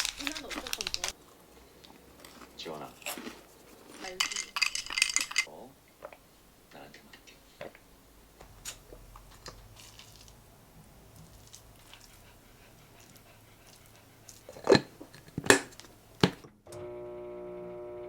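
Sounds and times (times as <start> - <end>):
dishes knocking: 14.5 - 16.4.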